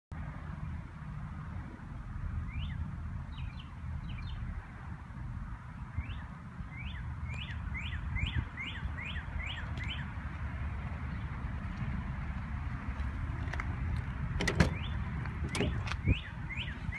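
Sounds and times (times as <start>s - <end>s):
bird chirping: 2.5s - 4.4s, 5.9s - 10.1s, 14.7s - 16.9s.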